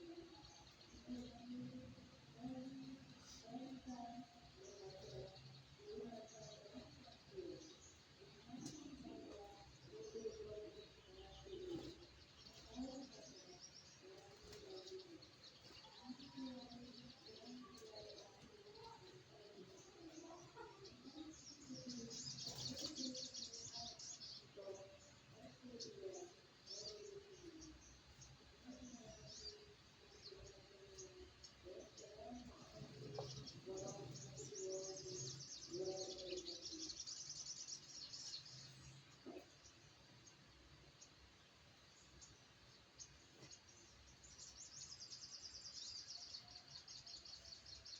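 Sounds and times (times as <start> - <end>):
doves cooing: 30.3 - 37.0.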